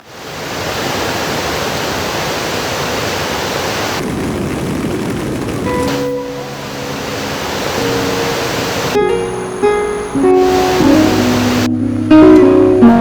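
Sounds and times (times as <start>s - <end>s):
water rushing: 0.0s - 13.0s
plucked string music: 5.7s - 13.0s.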